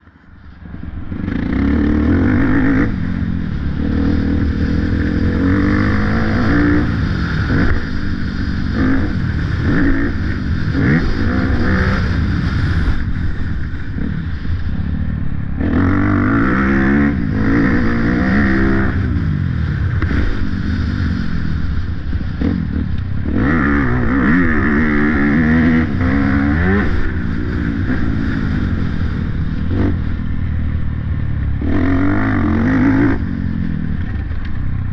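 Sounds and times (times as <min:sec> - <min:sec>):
motocross engine revving: 0:01.1 - 0:13.1, 0:15.6 - 0:19.4, 0:22.4 - 0:30.2, 0:31.6 - 0:34.1.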